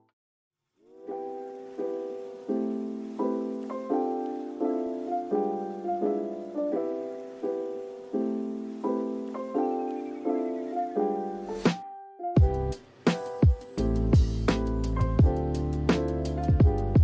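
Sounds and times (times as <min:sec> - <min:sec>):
gentle piano chords: 0:00.8 - 0:17.0.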